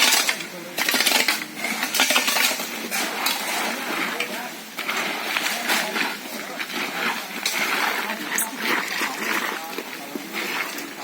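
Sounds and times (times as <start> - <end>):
hand tools striking stones: 0.0 - 11.0.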